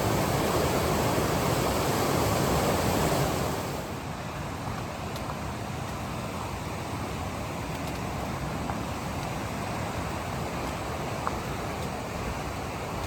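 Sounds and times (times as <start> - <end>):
steady rushing noise: 0.0 - 4.0.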